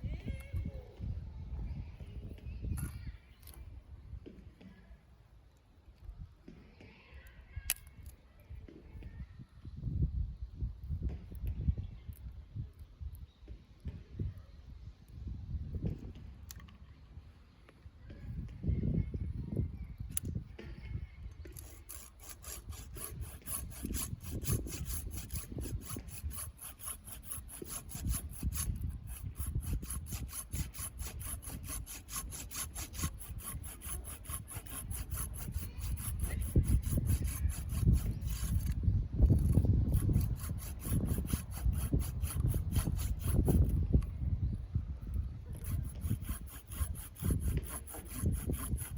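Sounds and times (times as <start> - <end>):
hand saw cutting wood: 21.4 - 43.9, 45.5 - 48.9.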